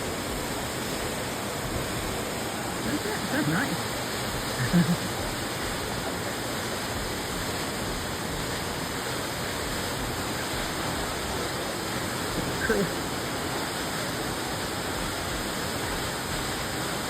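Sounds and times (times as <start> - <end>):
waterfall rushing: 0.0 - 17.0
low voice: 2.8 - 3.9, 4.6 - 5.2, 12.6 - 13.0.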